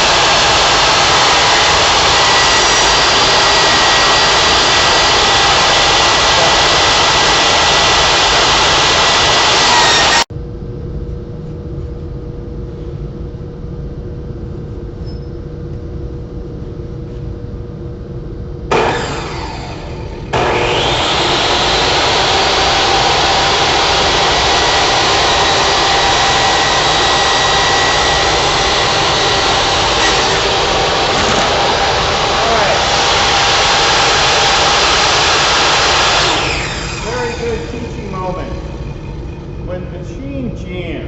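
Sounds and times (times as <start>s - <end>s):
band saw running: 0.0s - 10.3s, 18.7s - 41.0s
steady hum: 0.0s - 41.0s.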